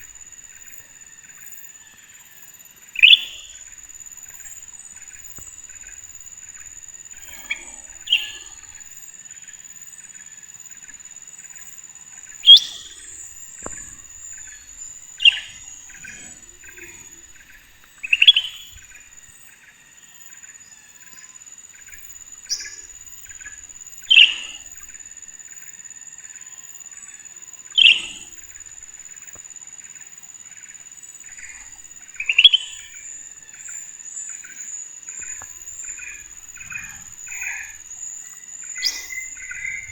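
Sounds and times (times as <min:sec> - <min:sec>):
bird chirping sharply: 0:12.5 - 0:13.0.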